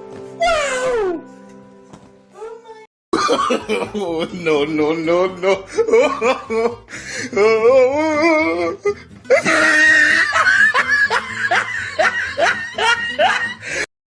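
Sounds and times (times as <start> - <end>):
background music: 0.0 - 13.9
person laughing: 3.2 - 8.7, 9.3 - 13.9.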